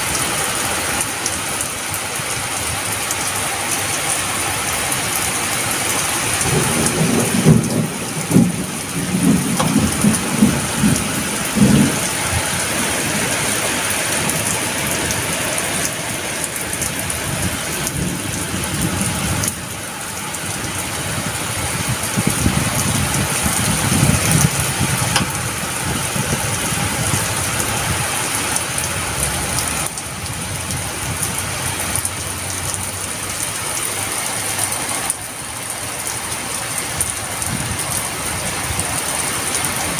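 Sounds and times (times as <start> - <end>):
heavy rain pouring: 0.0 - 39.9
low rolling thunder: 6.1 - 15.4, 16.5 - 32.5.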